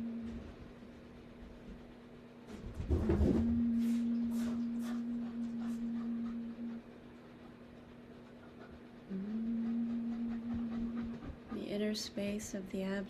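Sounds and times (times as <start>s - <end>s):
person chanting low note: 9.1s - 11.2s.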